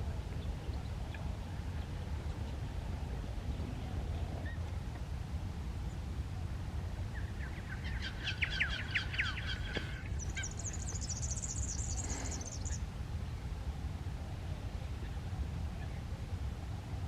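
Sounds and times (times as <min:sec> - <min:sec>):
steady low rumble: 0:00.0 - 0:17.0
songbirds singing: 0:06.8 - 0:13.5.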